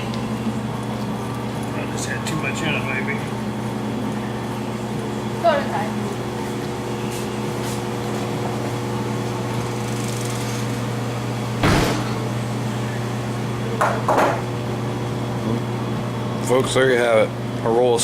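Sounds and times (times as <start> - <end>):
machine hum: 0.0 - 18.0
sharp knocks: 11.6 - 12.2.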